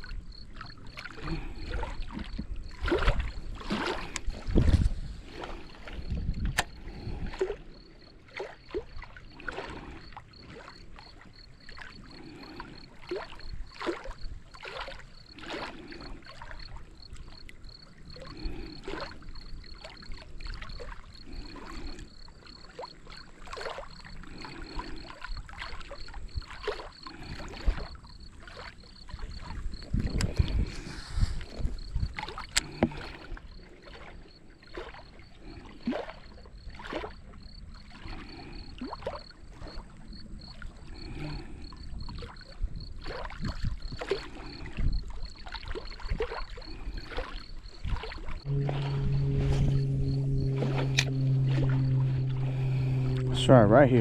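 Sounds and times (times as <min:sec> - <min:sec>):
water lapping against boat: 0:00.0 - 0:54.0
faint high whine: 0:48.4 - 0:54.0.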